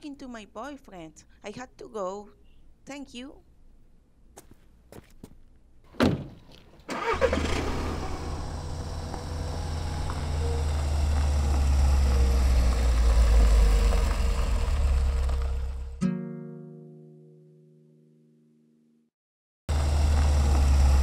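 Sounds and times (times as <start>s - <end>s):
thump: 6.0s - 6.4s
car engine starting and running: 6.8s - 16.0s, 19.7s - 21.0s.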